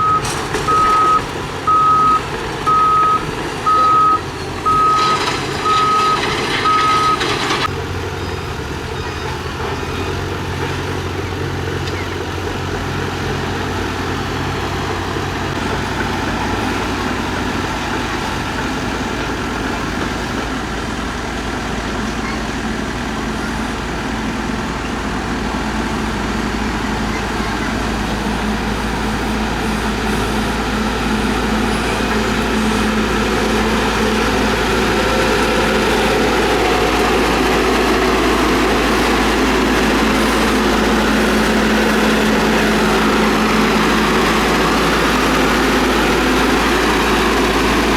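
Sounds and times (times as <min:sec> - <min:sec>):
reversing alarm beeping: 0:00.0 - 0:07.7
diesel engine running under load: 0:00.0 - 0:47.9.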